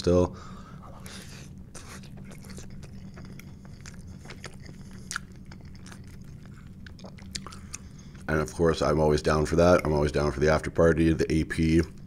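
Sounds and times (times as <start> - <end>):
person chewing crunchy food: 0.8 - 8.3.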